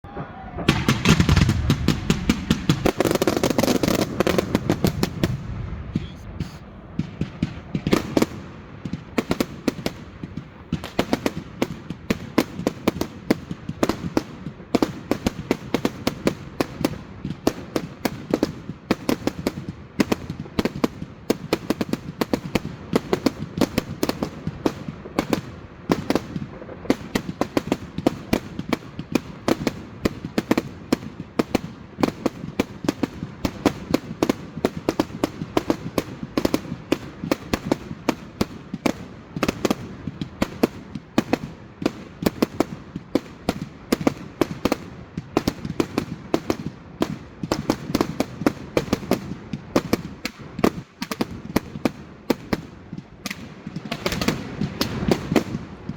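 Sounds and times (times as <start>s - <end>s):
low rumble of explosions: 0.0s - 15.5s
fireworks bangs and cracks: 0.0s - 55.9s.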